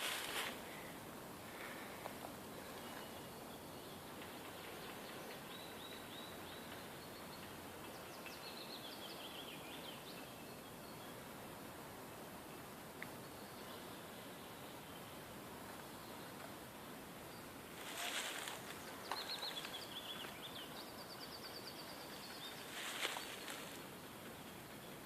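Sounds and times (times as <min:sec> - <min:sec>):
faint hiss: 0:00.0 - 0:25.0
small bird singing: 0:02.6 - 0:11.2, 0:17.3 - 0:23.8.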